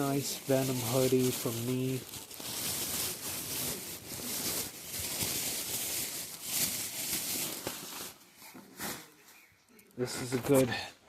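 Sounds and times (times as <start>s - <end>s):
clothing and packaging rustling: 0.0s - 10.9s.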